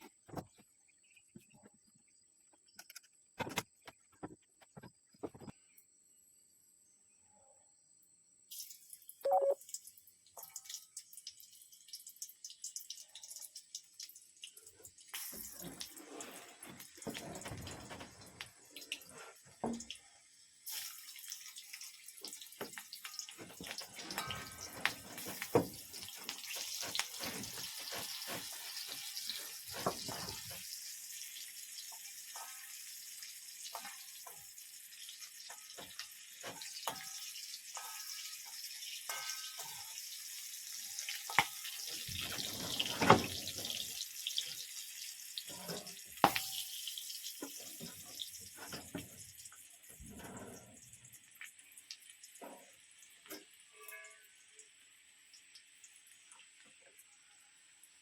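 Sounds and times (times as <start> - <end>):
water splashing and dripping: 8.5 - 53.6
hiss of running water: 15.1 - 19.9, 20.6 - 32.7, 38.3 - 44.7.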